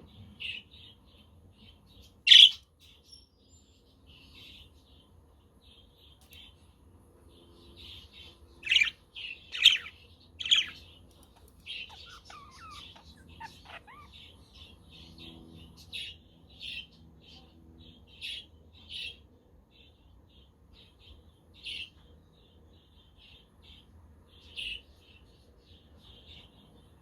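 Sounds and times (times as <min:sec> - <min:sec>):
budgerigars chirping: 0:02.3 - 0:02.6, 0:08.6 - 0:15.3
loud sharp bird calls: 0:02.3 - 0:02.6, 0:08.2 - 0:15.4.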